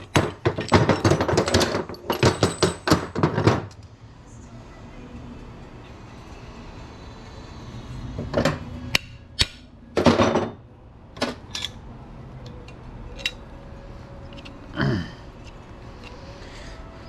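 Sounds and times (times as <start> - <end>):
metal parts clanking: 0.0 - 3.8, 11.2 - 11.8, 12.6 - 13.5, 14.2 - 14.6.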